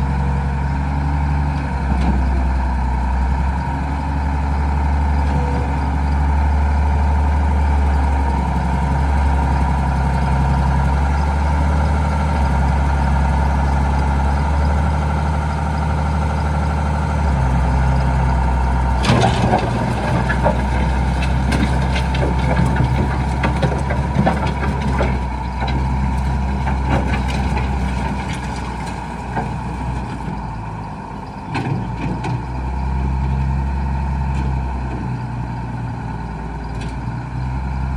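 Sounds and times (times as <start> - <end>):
tractor diesel engine running: 0.0 - 37.9
rattling and clatter: 18.4 - 30.2.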